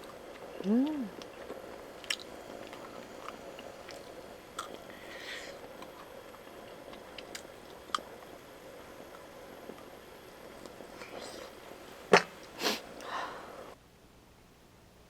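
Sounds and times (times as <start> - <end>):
person chewing food: 0.0 - 8.2, 10.6 - 13.1.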